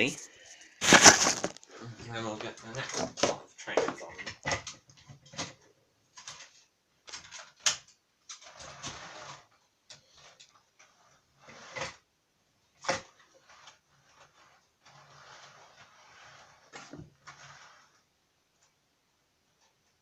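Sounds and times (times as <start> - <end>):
handling rustle: 0.5 - 1.6.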